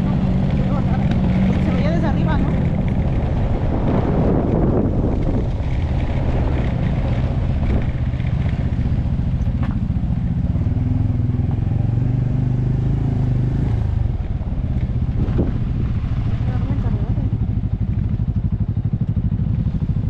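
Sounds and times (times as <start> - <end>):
riding noise: 0.0 - 10.3
motorcycle engine running: 0.0 - 20.0.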